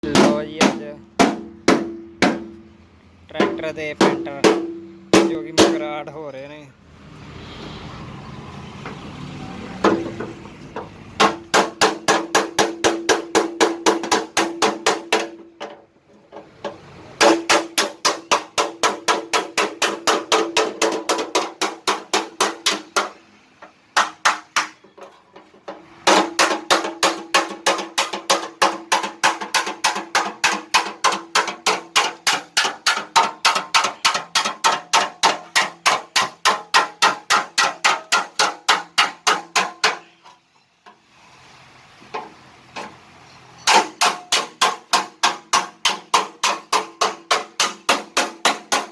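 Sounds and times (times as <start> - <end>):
hammer beating sheet metal: 0.0 - 2.7, 3.4 - 6.1, 11.2 - 15.7, 17.2 - 23.2, 24.0 - 25.1, 26.0 - 40.1, 43.7 - 48.9.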